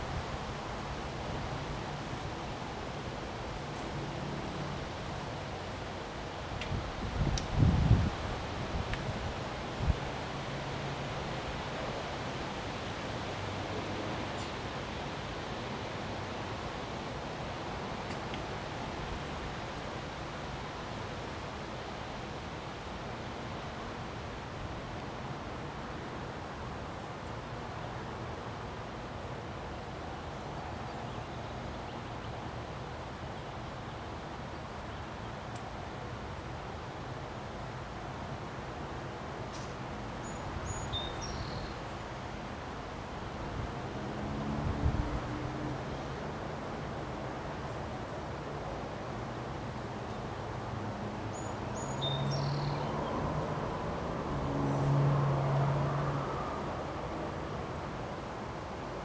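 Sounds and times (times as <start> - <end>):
low engine-like hum: 0.0 - 10.0, 37.5 - 59.0
rushing wind: 6.7 - 10.2.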